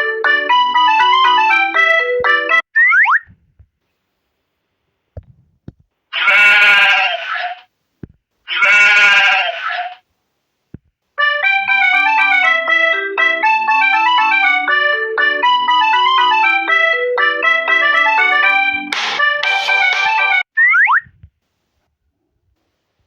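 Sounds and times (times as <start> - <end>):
keyboard music: 0.0 - 2.6, 11.2 - 20.5
goat or sheep bleating: 6.1 - 7.6, 8.5 - 10.0.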